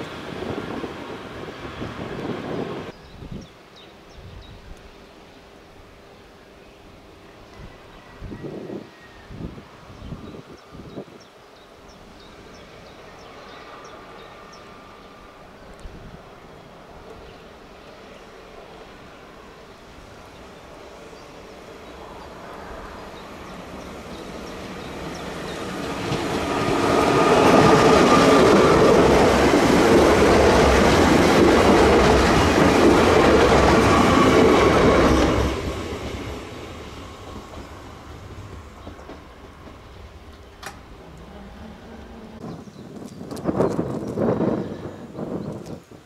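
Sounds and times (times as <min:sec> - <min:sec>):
train passing at speed: 0:00.0 - 0:46.0.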